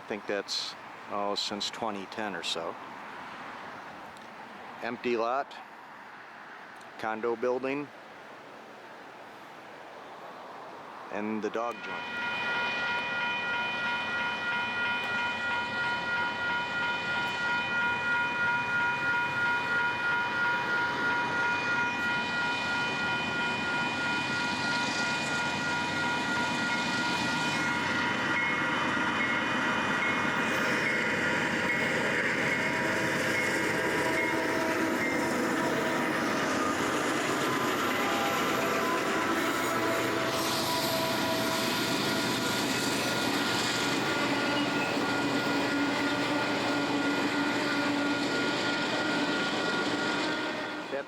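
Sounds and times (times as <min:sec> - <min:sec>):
train running past: 0:00.0 - 0:07.8, 0:09.4 - 0:51.0
high ringing tones: 0:11.8 - 0:43.4.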